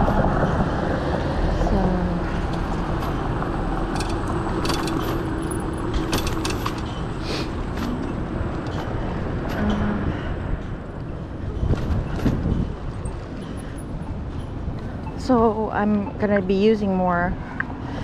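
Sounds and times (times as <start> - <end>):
road noise: 0.0 - 18.0
traffic noise: 0.0 - 18.0
wind noise: 0.0 - 18.0
sharp clicks and rattles: 1.6 - 9.7.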